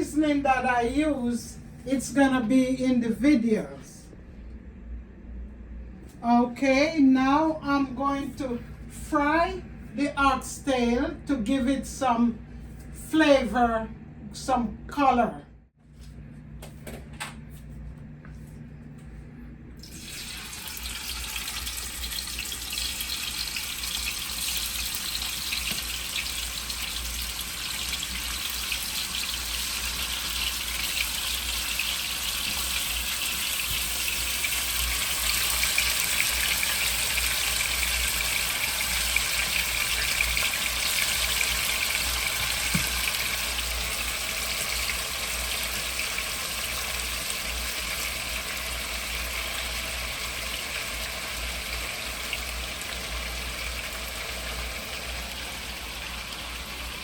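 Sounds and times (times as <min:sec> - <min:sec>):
meat sizzling in hot oil: 0:19.8 - 0:57.0.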